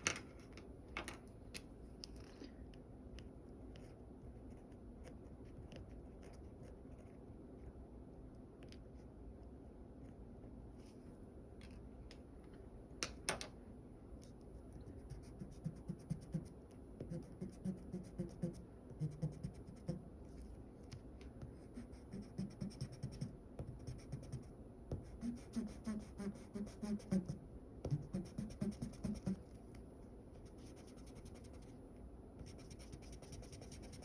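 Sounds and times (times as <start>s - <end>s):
drawing tool scratching on paper: 21.4s - 29.4s.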